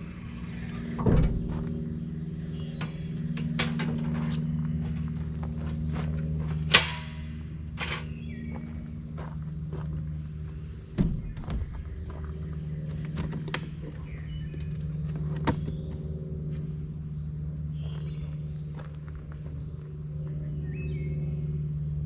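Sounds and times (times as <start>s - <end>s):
low steady hum: 0.0s - 22.0s
camp gear knocks and clicks: 6.0s - 8.2s.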